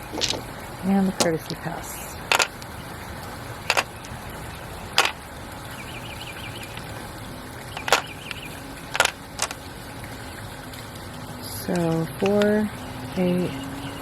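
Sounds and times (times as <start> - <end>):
mahjong tiles clacking: 0.0 - 0.4, 2.3 - 2.6, 3.7 - 3.9, 7.8 - 8.1, 8.9 - 9.6.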